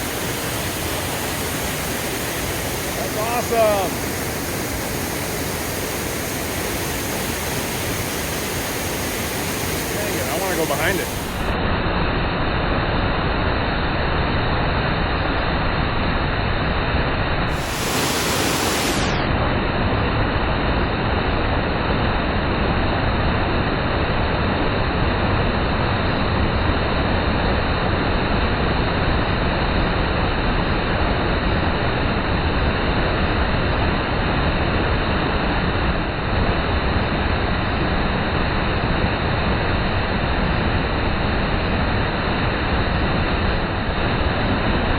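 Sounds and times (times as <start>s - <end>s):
waterfall rushing: 0.0s - 11.6s, 17.5s - 19.2s.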